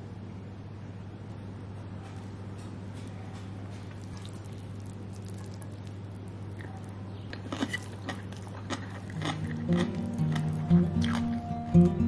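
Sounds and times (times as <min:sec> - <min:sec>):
steady low hum: 0:00.0 - 0:12.0
crunchy biting and chewing: 0:03.8 - 0:12.0.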